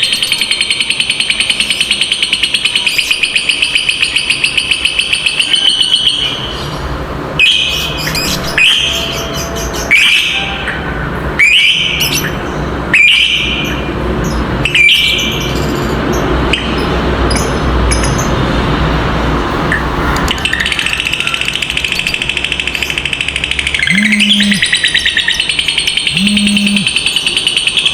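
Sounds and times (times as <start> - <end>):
bird rattling trill: 20.9 - 27.6
shrill bird calls: 21.4 - 27.9.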